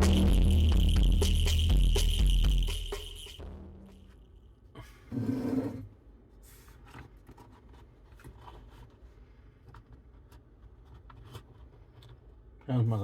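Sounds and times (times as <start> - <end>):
light clicks and scrapes: 5.2 - 12.4.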